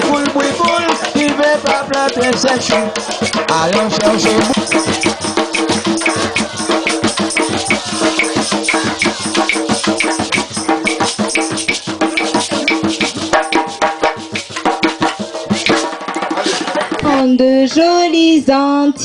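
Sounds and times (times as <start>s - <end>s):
person singing: 0.0s - 11.2s
held instrument notes: 0.0s - 16.0s
shakers and hand drum: 0.0s - 17.4s.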